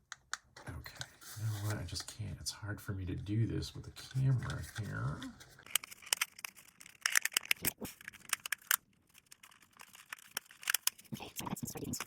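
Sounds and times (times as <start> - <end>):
plastic clicks and scrapes: 4.0 - 12.0.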